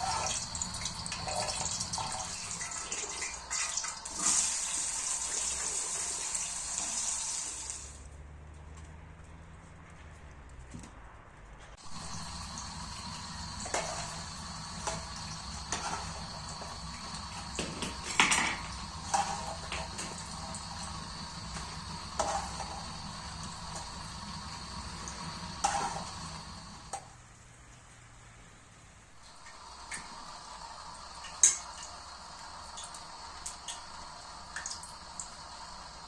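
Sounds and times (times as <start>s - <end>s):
kitchen hiss: 0.0s - 8.0s, 11.8s - 27.0s.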